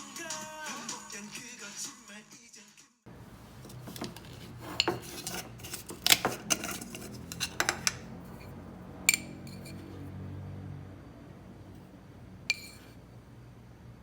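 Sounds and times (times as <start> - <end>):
utensils and dishes clinking: 3.2 - 10.1, 12.5 - 13.0.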